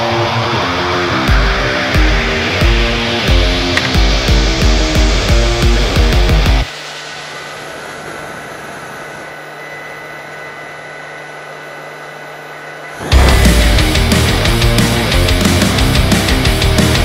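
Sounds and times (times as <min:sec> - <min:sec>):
loud rock music: 0:00.0 - 0:06.7, 0:13.0 - 0:17.0.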